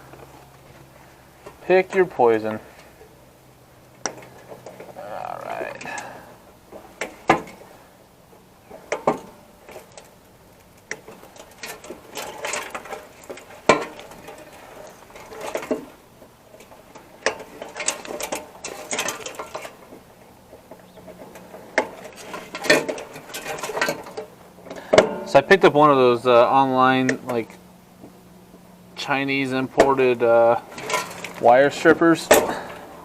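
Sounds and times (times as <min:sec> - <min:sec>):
metal parts rattling and clattering: 0:10.9 - 0:19.9, 0:20.9 - 0:24.3, 0:30.6 - 0:32.9.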